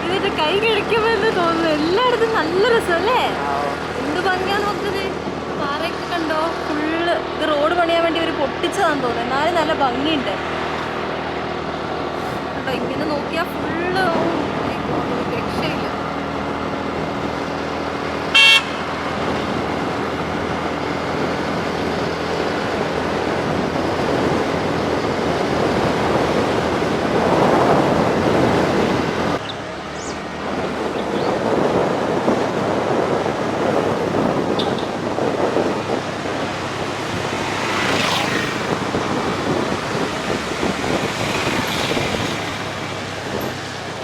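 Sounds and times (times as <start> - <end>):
motorcycle road and wind noise: 0.0 - 44.0
vehicle horn toot: 18.3 - 19.0.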